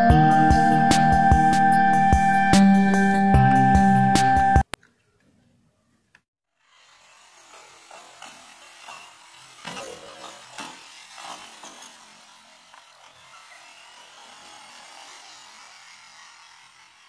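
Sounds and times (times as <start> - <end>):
rubber tyres scrubbing on concrete: 6.6 - 17.0
toy car motors whining: 6.6 - 17.0.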